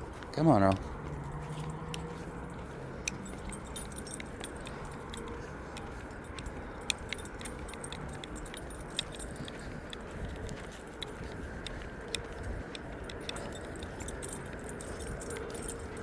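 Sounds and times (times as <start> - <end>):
small metal pieces jingling: 1.5 - 10.0, 13.1 - 16.0.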